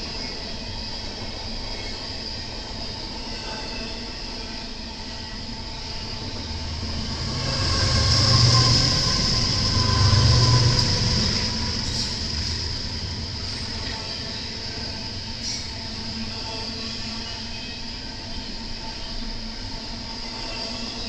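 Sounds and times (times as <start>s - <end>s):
train wheels rumbling on rails: 0.0s - 21.0s
high wheel squeal: 5.0s - 18.6s.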